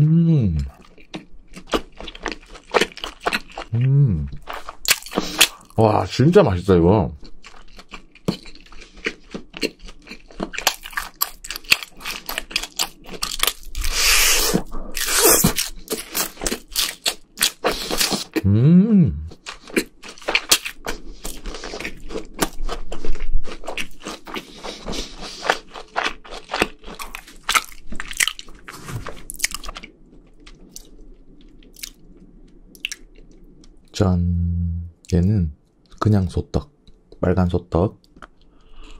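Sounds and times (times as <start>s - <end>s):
person humming: 0.0s - 0.7s, 3.8s - 4.4s, 18.4s - 19.4s, 34.1s - 35.0s
wet mouth sounds: 0.0s - 0.9s, 13.8s - 15.7s
crunching and chewing: 0.6s - 5.8s, 7.2s - 18.4s, 19.3s - 33.9s, 38.0s - 38.9s.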